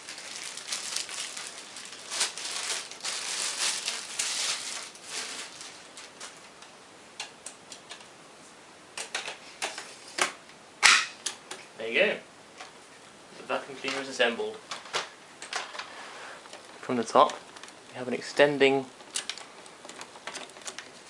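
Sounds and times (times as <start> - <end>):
plastic scraping and rubbing: 19.0 - 21.0.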